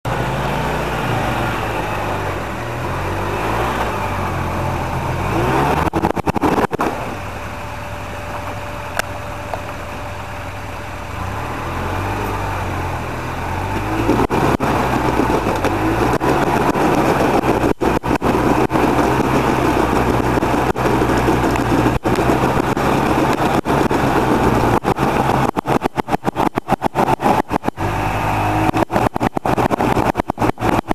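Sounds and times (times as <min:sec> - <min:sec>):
utility vehicle engine revving: 0:00.1 - 0:30.9.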